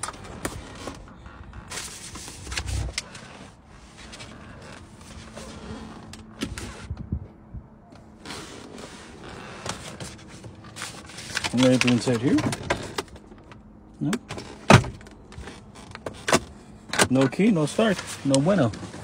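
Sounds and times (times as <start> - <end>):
car interior clicks and knocks: 14.2 - 17.4.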